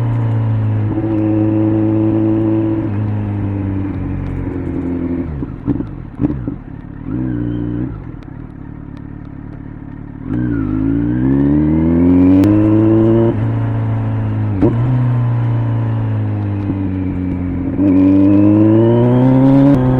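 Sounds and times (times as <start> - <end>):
motorcycle engine revving: 0.0 - 19.9.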